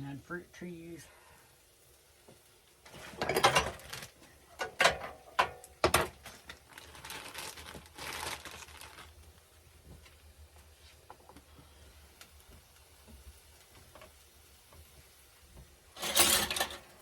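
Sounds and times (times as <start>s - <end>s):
rustling: 2.8s - 4.6s, 6.2s - 11.8s
cookware knocking and clattering: 3.1s - 3.8s, 4.6s - 6.1s, 16.0s - 16.9s.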